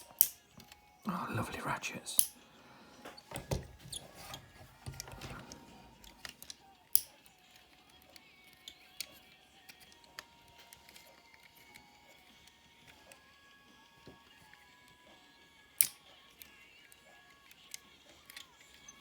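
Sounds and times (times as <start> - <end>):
plastic toy joints clicking: 0.0 - 0.9, 3.2 - 13.2, 15.7 - 19.0.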